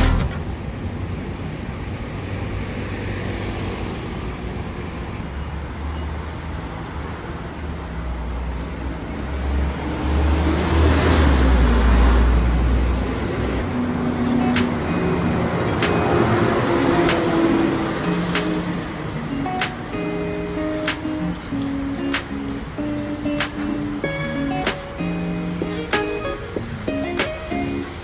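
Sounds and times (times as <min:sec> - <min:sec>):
traffic rumble: 0:00.0 - 0:28.0
vehicle passing close: 0:09.3 - 0:28.0.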